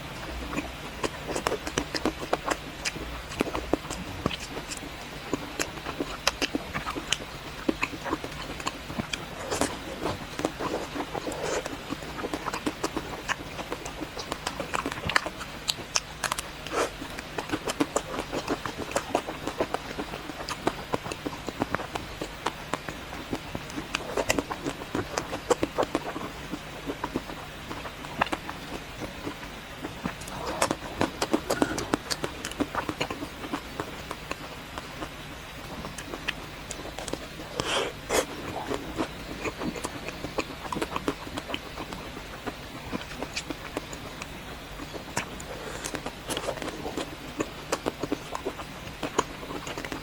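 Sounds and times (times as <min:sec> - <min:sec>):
eating ice cream close up: 0:00.0 - 0:50.0
mouth clicks: 0:30.0 - 0:50.0.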